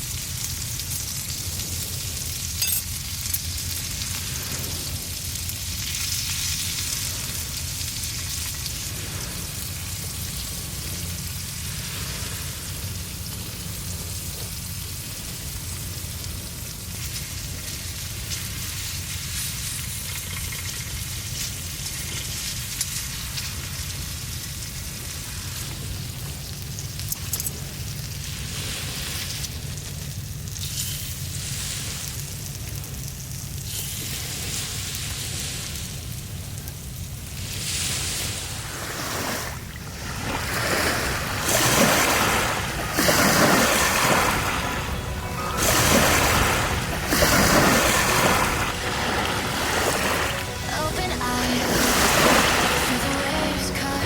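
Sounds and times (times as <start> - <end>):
sea waves breaking on beach: 0.0 - 26.6, 27.5 - 54.0
food sizzling on griddle: 0.0 - 38.7
sharp crackles: 0.0 - 38.7
low steady rumble: 0.0 - 54.0
wind rumble on microphone: 3.6 - 30.2.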